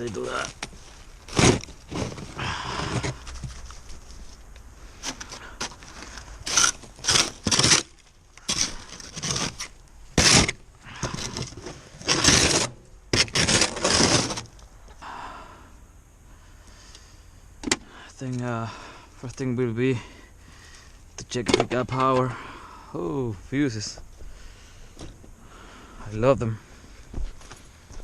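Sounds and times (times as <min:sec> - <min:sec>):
scraping and rubbing: 0:00.0 - 0:04.4, 0:05.0 - 0:14.6.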